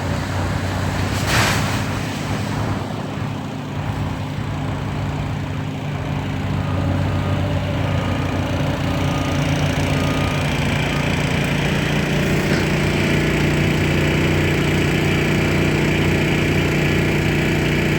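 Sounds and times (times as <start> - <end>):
small engine running: 4.6 - 17.9.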